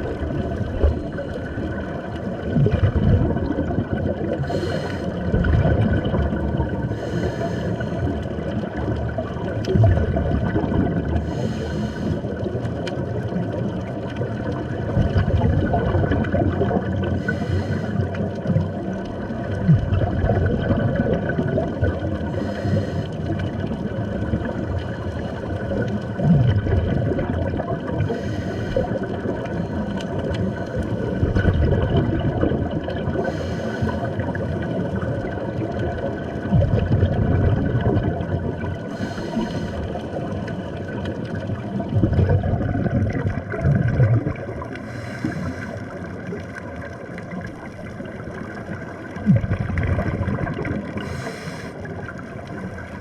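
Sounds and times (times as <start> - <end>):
exhaled bubbles rumbling: 0.0 - 53.0
regulator inhalation hiss: 51.0 - 51.8.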